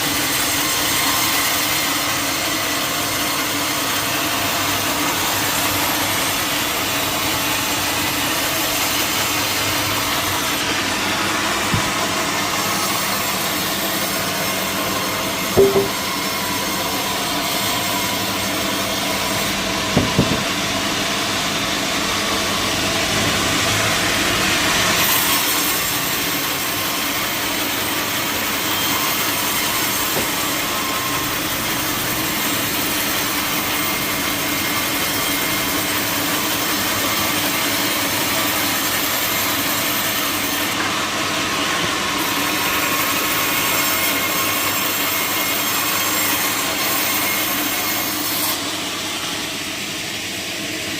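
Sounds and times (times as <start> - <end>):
sawmill saw cutting log: 0.0 - 50.9
sharp knocks: 15.6 - 16.1, 20.0 - 20.6.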